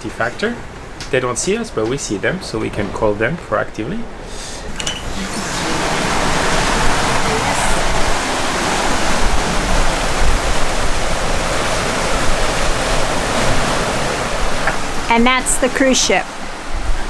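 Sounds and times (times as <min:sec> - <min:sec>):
water rushing past boat: 0:00.0 - 0:17.0
wind rushing: 0:05.0 - 0:17.0.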